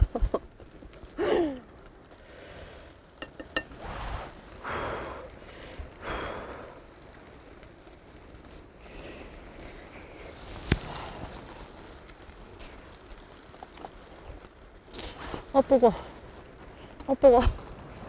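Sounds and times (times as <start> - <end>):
soft rushing sizzling: 0.0 - 18.0
utensils clicking on a pan: 3.2 - 4.3.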